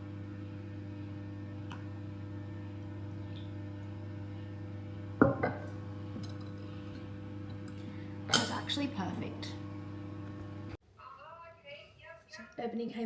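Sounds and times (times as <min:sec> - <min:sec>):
kitchen appliance humming: 0:00.0 - 0:10.8
crockery knocks: 0:05.2 - 0:05.7.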